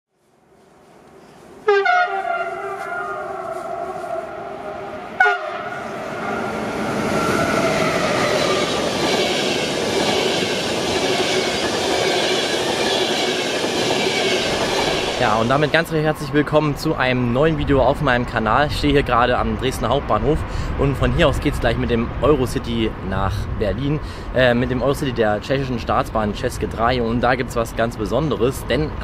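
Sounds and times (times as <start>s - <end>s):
locomotive horn: 1.6s - 7.6s
train wheels rushing on rail: 2.1s - 17.1s.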